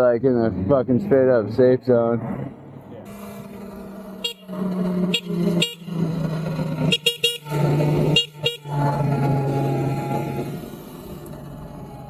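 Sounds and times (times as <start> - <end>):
low vehicle horn blasts: 4.2 - 6.0, 6.8 - 8.9.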